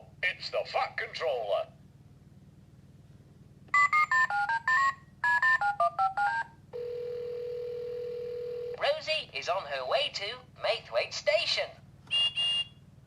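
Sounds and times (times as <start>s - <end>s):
dialing beeps: 3.8s - 6.5s
dial tone: 3.8s - 8.8s.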